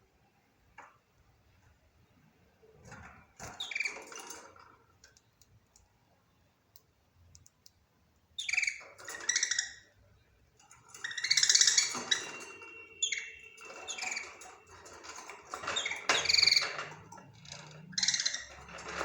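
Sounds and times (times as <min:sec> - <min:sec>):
faint clicks: 0:06.7 - 0:07.8.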